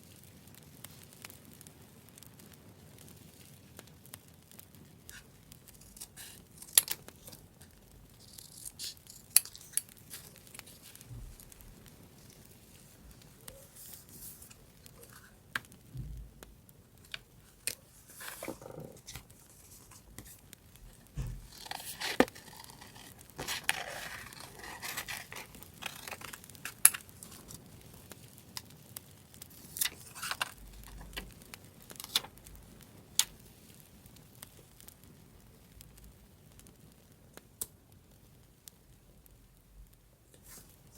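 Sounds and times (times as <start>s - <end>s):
paper rustling and tearing: 5.8s - 7.4s, 8.2s - 15.4s, 17.0s - 27.6s, 29.6s - 31.2s.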